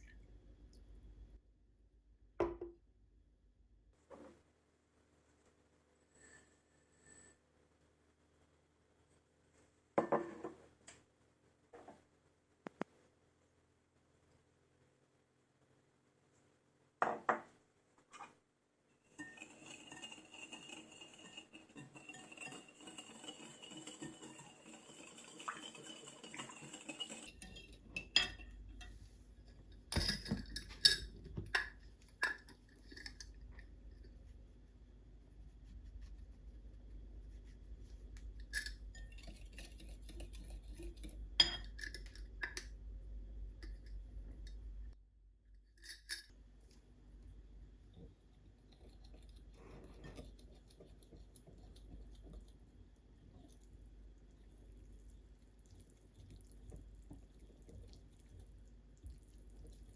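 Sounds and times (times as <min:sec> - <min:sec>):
kitchenware clinking and knocking: 0:02.4 - 0:02.7, 0:29.6 - 0:33.3.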